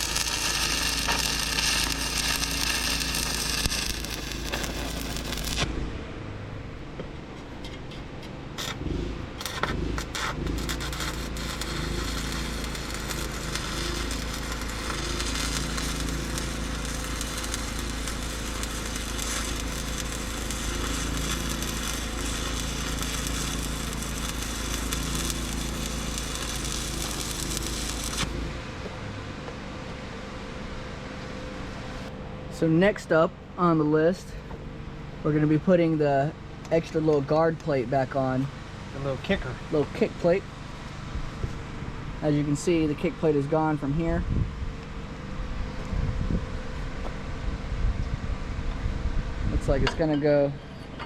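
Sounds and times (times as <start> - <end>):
arc striking pops: 0.0 - 5.8, 8.5 - 28.4
arc welder crackling sizzle: 0.0 - 5.8, 7.4 - 28.8
low hum: 0.0 - 32.6.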